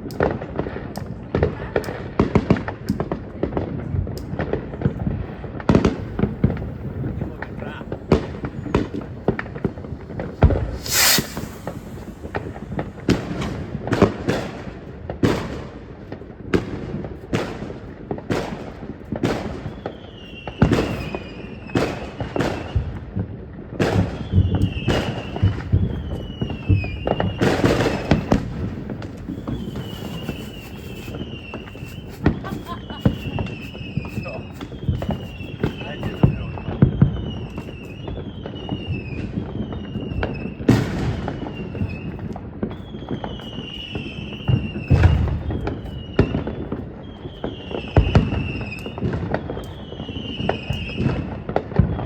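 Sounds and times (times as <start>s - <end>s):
firework bangs: 4.6s - 15.6s, 23.8s - 36.4s, 44.5s - 45.9s
crackling hiss: 6.0s - 13.4s, 25.1s - 36.1s
firework whistles falling in pitch: 10.4s - 13.5s, 24.2s - 40.5s.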